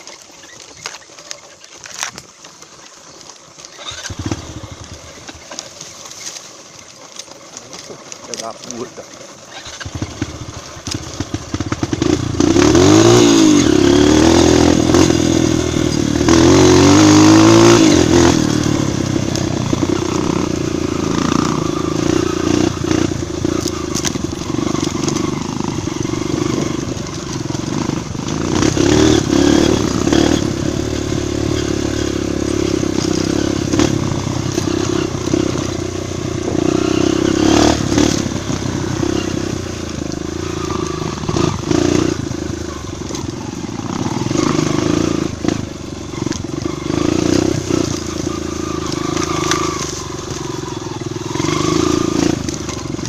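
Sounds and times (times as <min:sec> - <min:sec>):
bike clattering over rough ground: 0:00.0 - 0:53.0
motorcycle engine under load: 0:00.0 - 0:53.0.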